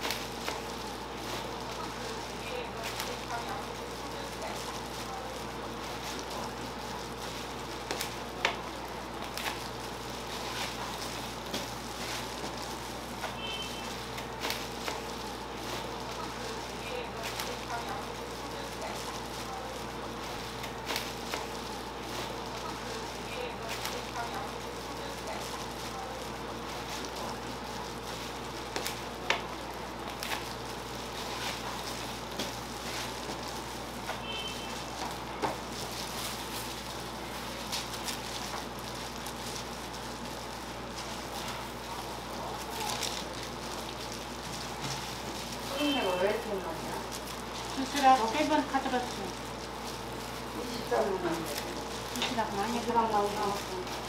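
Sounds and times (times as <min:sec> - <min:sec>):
utensils clicking and tapping: 0:00.0 - 0:54.0.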